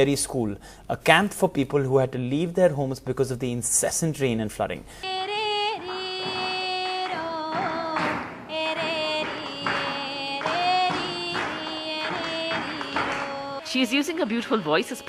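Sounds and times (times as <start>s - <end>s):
woman singing slow melody: 5.1s - 15.0s.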